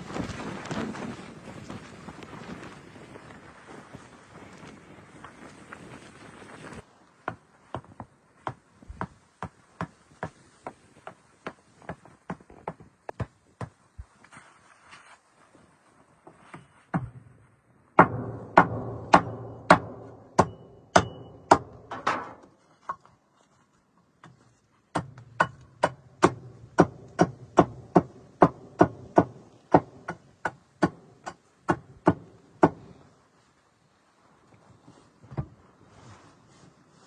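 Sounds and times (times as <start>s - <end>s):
tool striking with ring: 18.0s - 22.4s.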